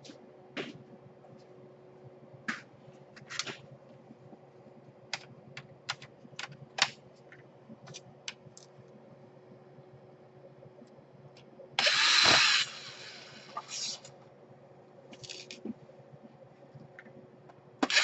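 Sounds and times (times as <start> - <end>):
faint steady hum: 0.0 - 18.0
laptop parts clicking: 5.1 - 7.0.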